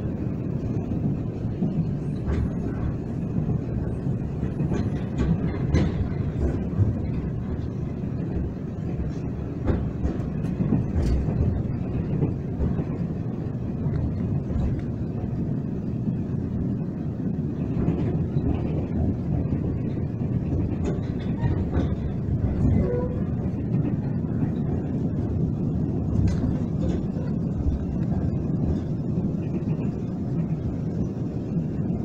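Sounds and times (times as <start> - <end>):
train wheels rumbling on rails: 0.0 - 32.0
sharp clicks and knocks: 4.4 - 7.6, 8.3 - 13.0.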